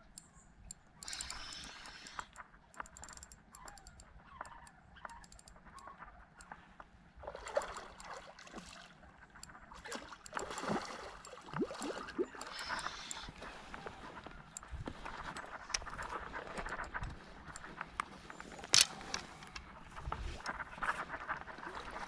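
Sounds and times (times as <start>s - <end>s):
fishing reel clicking: 0.1s - 6.6s, 7.5s - 8.2s, 10.2s - 19.6s
water splashing: 7.2s - 9.0s, 9.7s - 14.2s.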